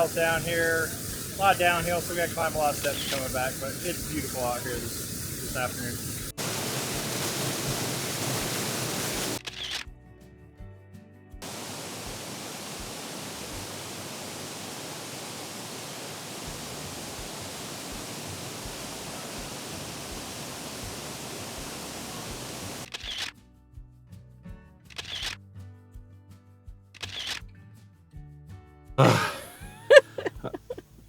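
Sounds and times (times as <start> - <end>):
waterfall rushing: 0.0 - 9.4, 11.4 - 22.8, 29.0 - 30.4
soft background music: 9.4 - 11.4.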